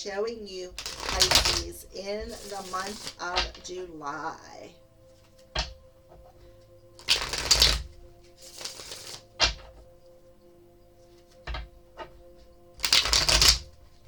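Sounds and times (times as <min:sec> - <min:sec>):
soft background music: 0:00.0 - 0:14.0
cards being shuffled: 0:00.7 - 0:03.8, 0:05.3 - 0:06.2, 0:07.0 - 0:09.9, 0:11.3 - 0:12.2, 0:12.8 - 0:14.0
deck of cards tapping: 0:00.7 - 0:03.8, 0:07.0 - 0:09.8, 0:11.5 - 0:12.1, 0:12.8 - 0:13.7.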